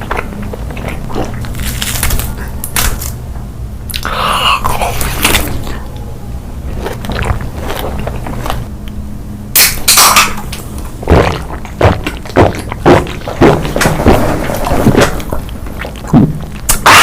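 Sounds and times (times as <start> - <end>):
eating crunches and clicks: 0.0 - 3.2, 6.7 - 8.7, 9.6 - 17.0
low steady hum: 0.0 - 17.0.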